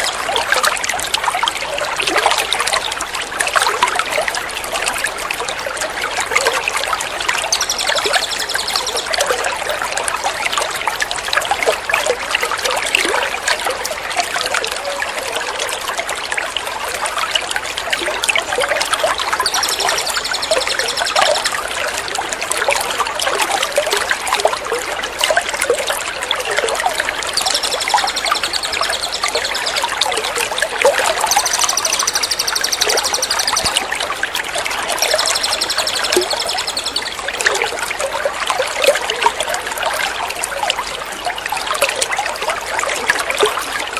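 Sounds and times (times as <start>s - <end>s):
water trickling and splashing: 0.0s - 43.9s
songbird trilling: 7.3s - 9.2s, 18.9s - 21.6s, 27.3s - 30.4s, 31.0s - 33.9s, 35.0s - 37.4s.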